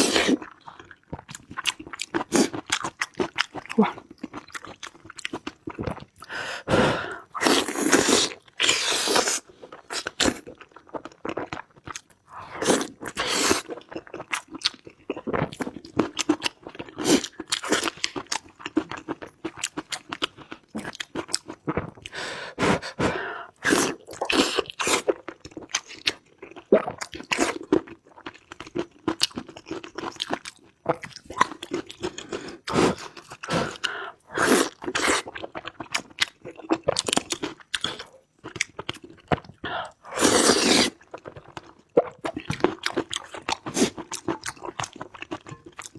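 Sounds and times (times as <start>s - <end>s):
crunching and chewing: 0.0s - 6.3s, 7.2s - 22.2s, 22.8s - 45.9s.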